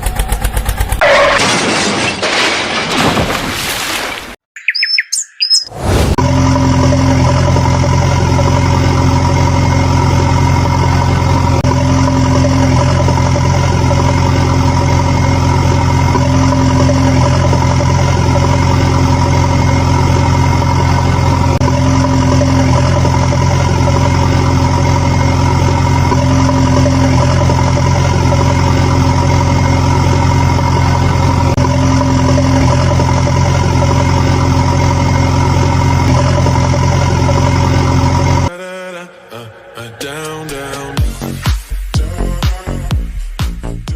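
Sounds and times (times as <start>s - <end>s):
heavy engine idling: 6.2s - 38.5s.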